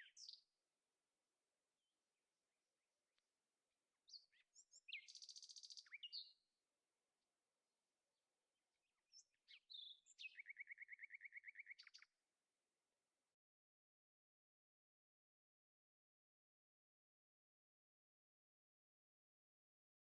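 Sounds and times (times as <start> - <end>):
songbird singing trills: 0.0 - 0.5, 4.0 - 6.4, 8.9 - 12.1.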